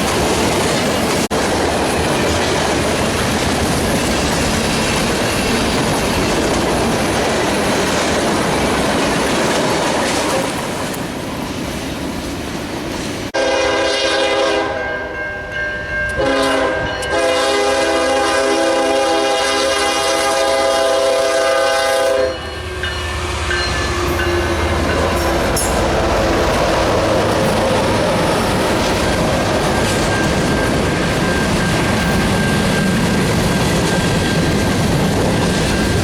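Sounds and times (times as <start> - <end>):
freight train rumbling past: 0.0 - 36.0
locomotive air horn chord: 13.4 - 15.0, 16.2 - 25.7.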